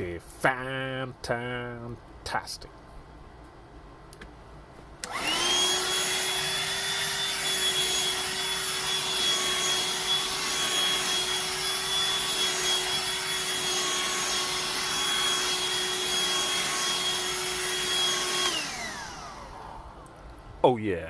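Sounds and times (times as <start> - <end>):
handheld vacuum whining: 5.0 - 20.2.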